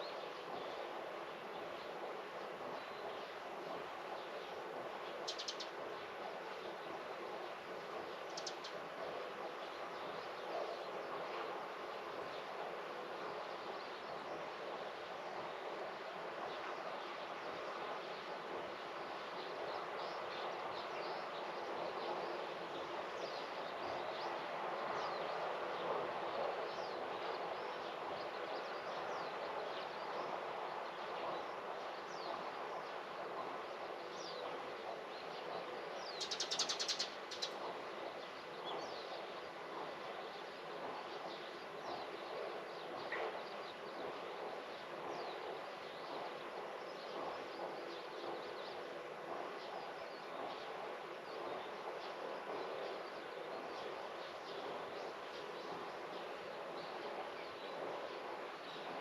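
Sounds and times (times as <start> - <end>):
outdoor background hush: 0.0 - 59.0
small birds chirping: 5.2 - 5.8, 34.1 - 59.0.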